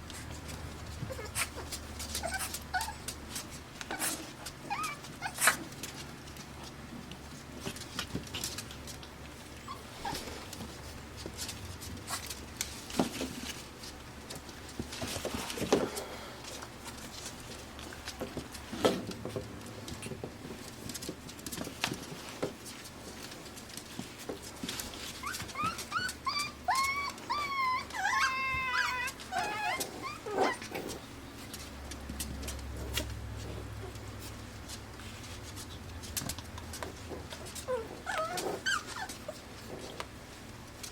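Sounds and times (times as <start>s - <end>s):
puppies whimpering and yipping: 0.2s - 6.0s, 9.4s - 11.0s, 24.8s - 31.1s, 36.7s - 40.3s
puppies high whines: 1.0s - 6.0s, 9.5s - 10.7s, 24.9s - 31.1s, 37.0s - 40.0s.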